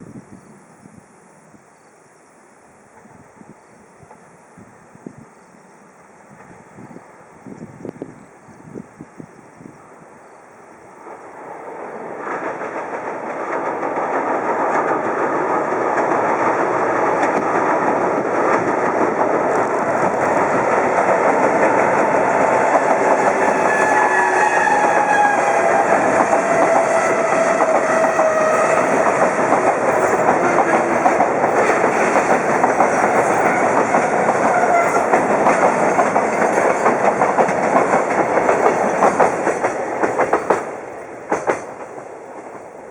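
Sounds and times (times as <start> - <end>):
freight train wheels clattering: 11.0 - 42.8.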